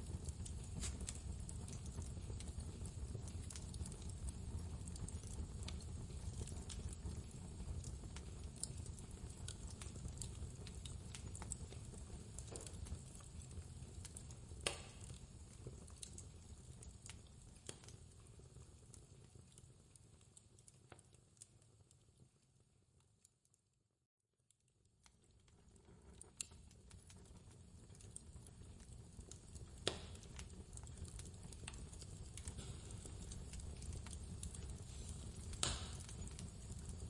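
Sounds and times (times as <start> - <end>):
fireplace crackling: 0.0 - 23.5, 24.5 - 37.0
sharp pops: 14.6 - 15.0, 35.6 - 36.1.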